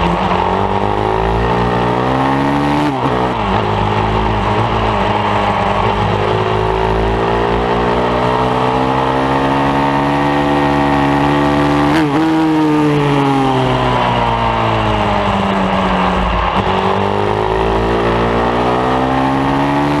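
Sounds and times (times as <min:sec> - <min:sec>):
pit bike engine revving: 0:00.0 - 0:20.0.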